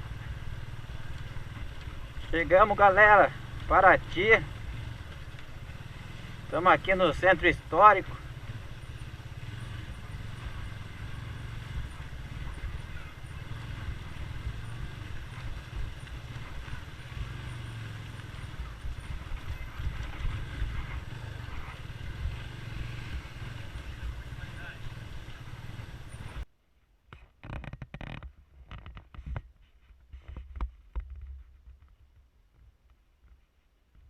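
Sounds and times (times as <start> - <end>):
motorcycle rumbling at low speed: 0.0 - 34.0.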